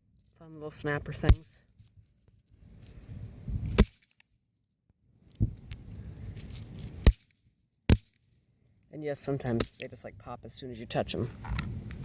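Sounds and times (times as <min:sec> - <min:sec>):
bang snaps popping: 0:03.7 - 0:04.0, 0:07.9 - 0:08.2.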